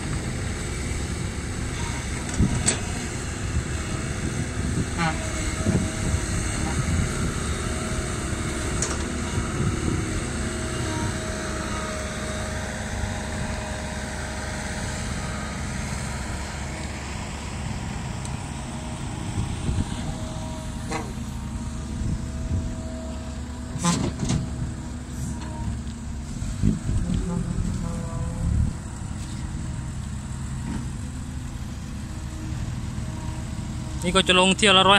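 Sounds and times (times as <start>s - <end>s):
heavy diesel engine running: 0.0s - 34.9s.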